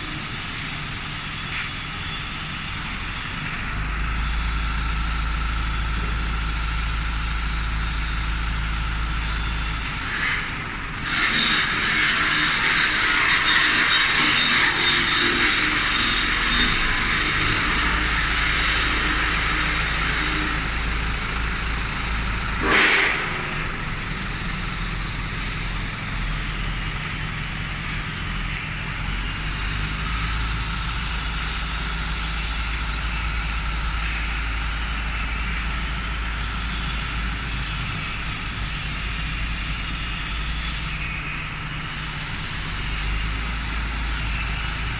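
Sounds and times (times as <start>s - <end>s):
engine humming: 0.0s - 44.9s.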